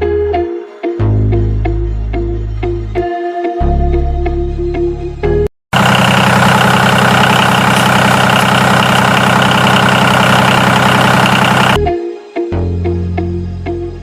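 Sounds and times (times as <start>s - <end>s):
music: 0.0s - 5.5s, 11.8s - 14.0s
engine idling with rattle: 5.8s - 11.8s.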